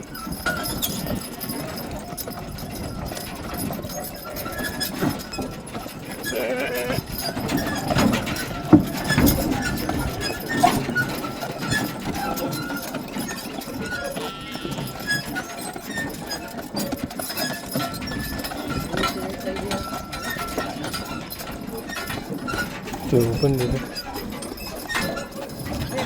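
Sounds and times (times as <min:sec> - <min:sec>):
farm animals bleating: 0:06.0 - 0:07.2, 0:14.0 - 0:15.2.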